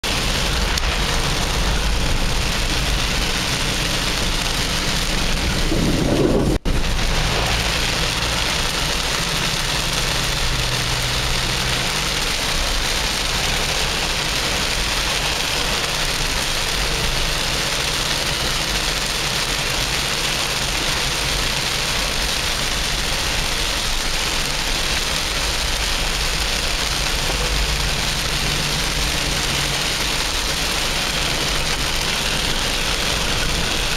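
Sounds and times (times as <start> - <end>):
heavy rain on a car: 0.0 - 33.9.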